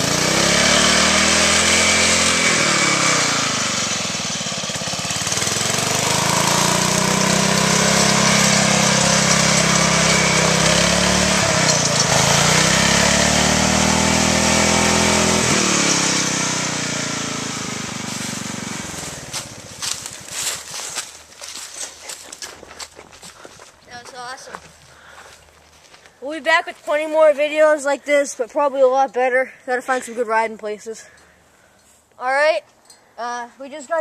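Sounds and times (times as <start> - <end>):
lawn mower engine revving: 0.0 - 22.3.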